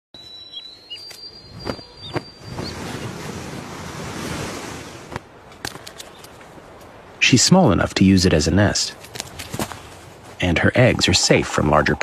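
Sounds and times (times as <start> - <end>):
gust of wind: 1.4 - 5.4.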